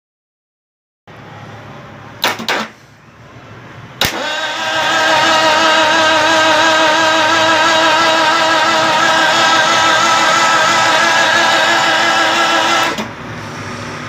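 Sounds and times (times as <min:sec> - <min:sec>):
sharp click: 0:04.0 - 0:04.3
car engine cranking: 0:04.0 - 0:13.2
car engine running: 0:04.1 - 0:13.8.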